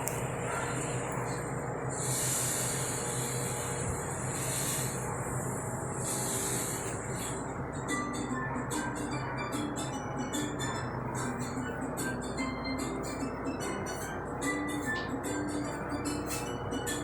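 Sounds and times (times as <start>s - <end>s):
hissing spray: 2.0s - 5.0s, 5.9s - 7.4s.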